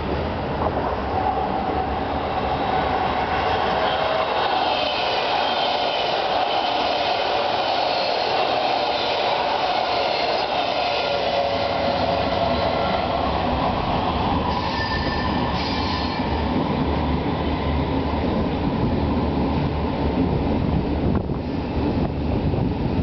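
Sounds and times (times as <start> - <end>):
metro train rumbling: 0.0 - 23.0
high train squeals: 1.1 - 16.6.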